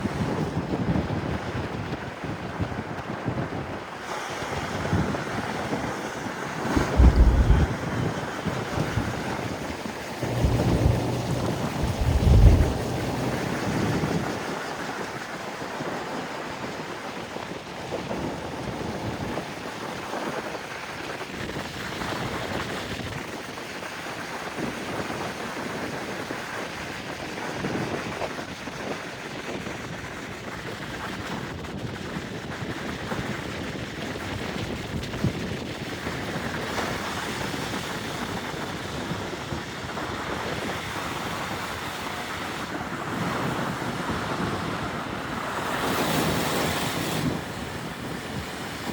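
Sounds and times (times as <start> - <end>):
wind gusting over microphone: 4.5 - 14.3
steady rainfall: 6.8 - 7.9, 10.0 - 13.8.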